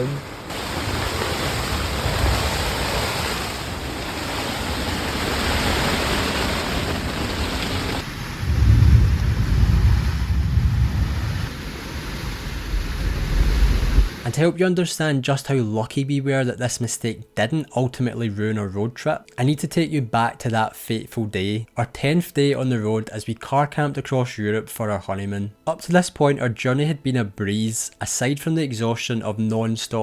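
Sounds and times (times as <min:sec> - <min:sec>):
thunder rumbling: 0:00.0 - 0:14.2
heavy rain pouring: 0:00.0 - 0:14.3.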